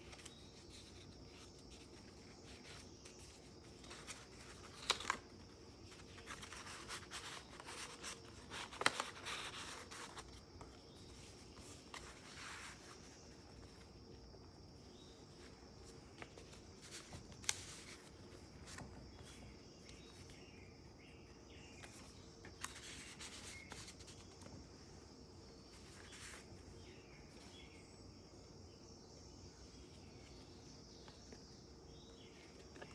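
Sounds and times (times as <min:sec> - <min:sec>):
paper pages rustling: 0:00.0 - 0:14.1, 0:14.9 - 0:20.4, 0:21.7 - 0:24.6, 0:25.7 - 0:26.6, 0:32.4 - 0:32.9.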